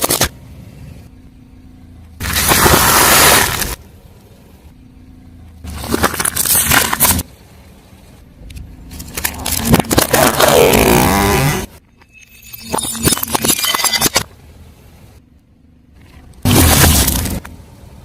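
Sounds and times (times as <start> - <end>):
car tyre crushing objects: 0.0 - 0.4, 2.1 - 3.9, 5.6 - 7.3, 8.5 - 11.8, 15.9 - 17.7.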